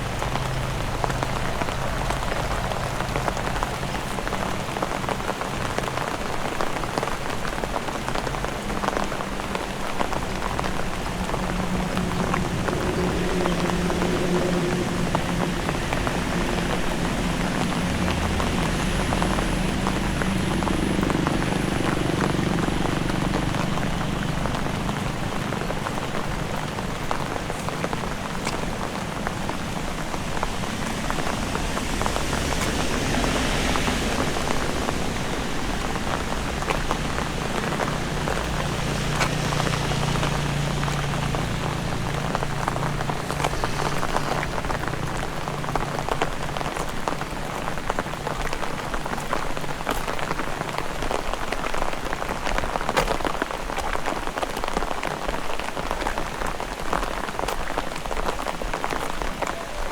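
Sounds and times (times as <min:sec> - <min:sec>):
heavy rain pouring: 0:00.0 - 0:59.9
low steady rumble: 0:09.5 - 0:49.8.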